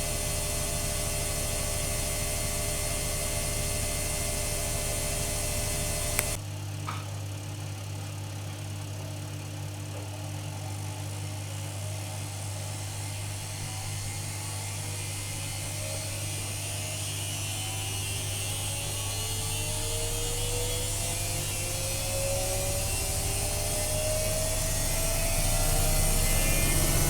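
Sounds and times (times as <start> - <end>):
low hum: 0.0 - 6.4
washing machine motor whine: 0.0 - 6.6, 10.4 - 27.0
washing machine running: 0.0 - 6.7, 9.6 - 27.0.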